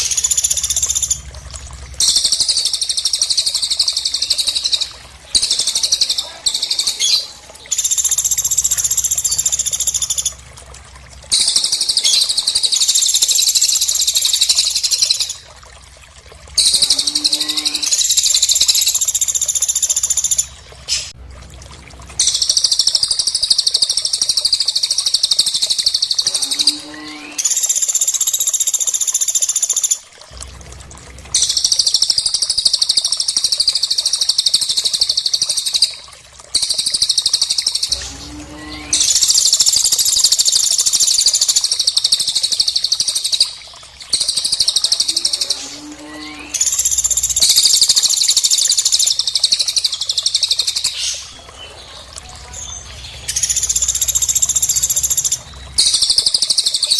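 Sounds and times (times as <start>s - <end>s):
birds chattering trills: 2.0s - 10.3s.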